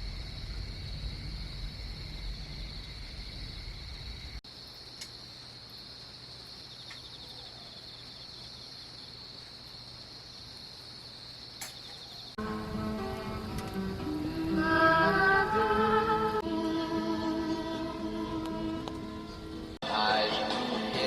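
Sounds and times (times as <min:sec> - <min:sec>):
low rumble: 0:00.0 - 0:04.4
insects chirping: 0:00.0 - 0:21.0.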